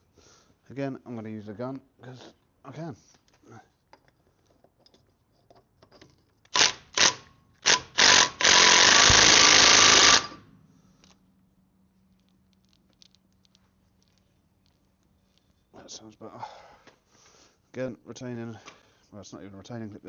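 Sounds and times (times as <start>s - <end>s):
impact gun bursts: 6.6s - 10.4s.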